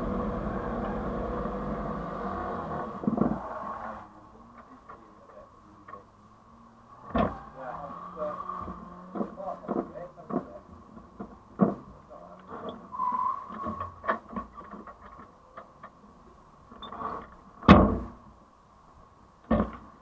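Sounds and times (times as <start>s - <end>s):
car engine idling: 0.0s - 3.0s
loud thump: 17.6s - 18.2s.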